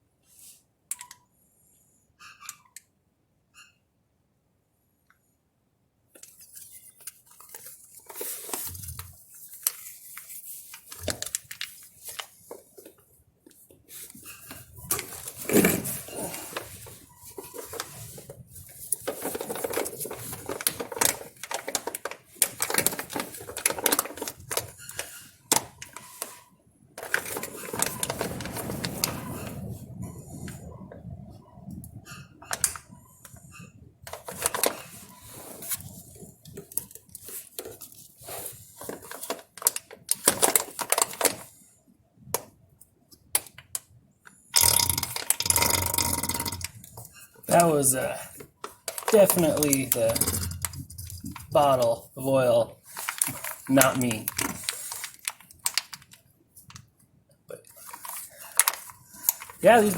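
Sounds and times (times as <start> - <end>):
plastic pack clattering and rustling: 6.2 - 26.4, 27.0 - 29.8, 34.1 - 41.6, 44.6 - 56.9, 57.7 - 59.9.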